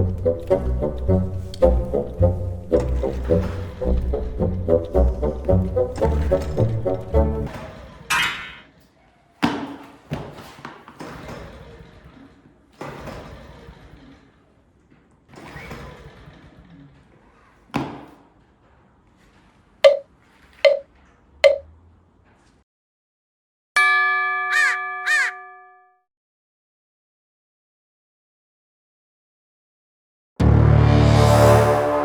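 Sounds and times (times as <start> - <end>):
sharp ringing taps: 21.4 - 21.6, 23.8 - 25.9.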